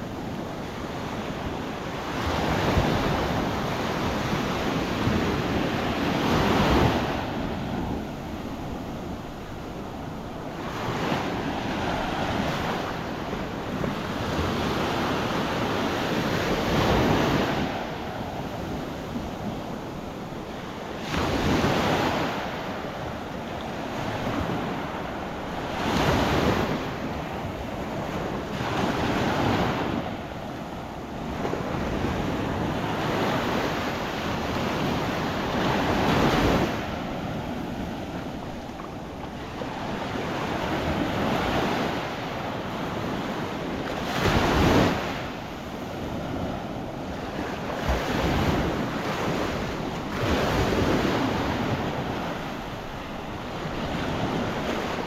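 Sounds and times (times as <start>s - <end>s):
wind buffeting microphone: 0.0s - 55.0s
surf breaking on beach: 31.2s - 55.0s.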